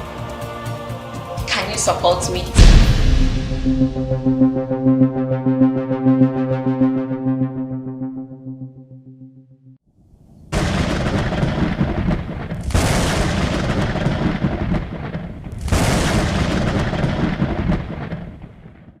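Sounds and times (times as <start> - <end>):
loud rumbling noise blasts: 2.6 - 5.3.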